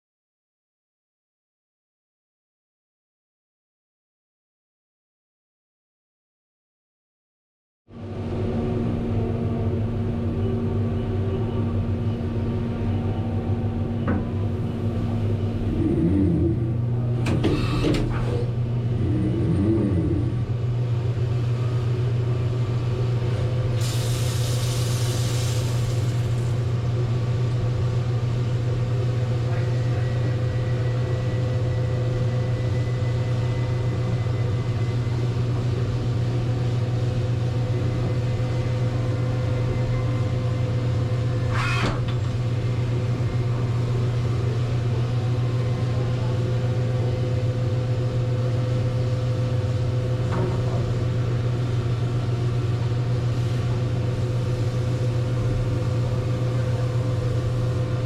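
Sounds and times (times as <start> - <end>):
milling machine hum: 8.2 - 58.0
hiss: 23.8 - 26.6.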